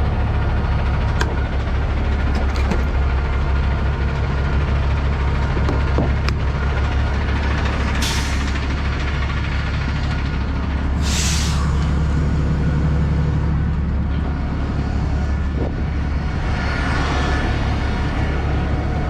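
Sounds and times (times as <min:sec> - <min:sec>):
diesel truck engine running: 0:00.0 - 0:19.0
air hiss: 0:11.0 - 0:11.8.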